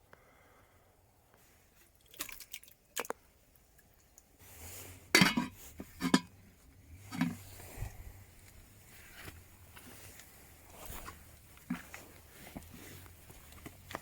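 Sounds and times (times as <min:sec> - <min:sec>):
cookware and utensils clinking: 0:05.2 - 0:06.4.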